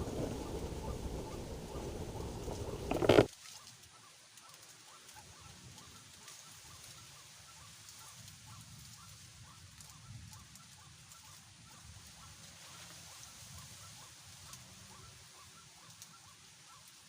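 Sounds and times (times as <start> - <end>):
low rumble: 0.0 - 3.3
waterhen croaking calls: 0.0 - 3.3.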